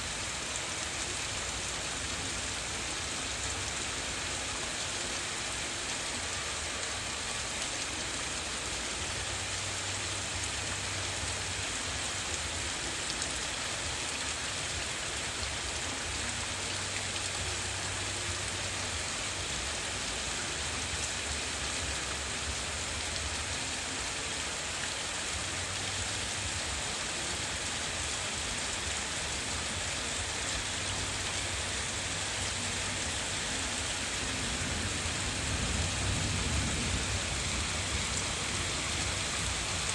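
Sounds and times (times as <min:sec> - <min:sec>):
heavy rain falling: 0:00.0 - 0:39.9
low thunder rumble: 0:33.8 - 0:39.9.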